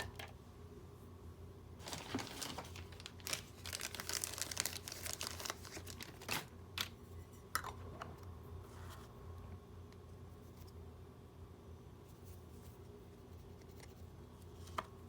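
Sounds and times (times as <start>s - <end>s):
crinkling and rustling: 1.8s - 7.0s.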